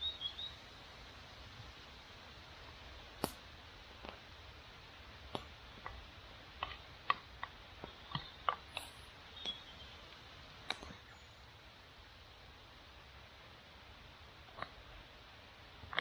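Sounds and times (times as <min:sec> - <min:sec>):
wood fire crackling: 0:00.0 - 0:16.0
sharp pops and snaps: 0:03.0 - 0:04.3, 0:05.2 - 0:09.7, 0:10.6 - 0:11.1.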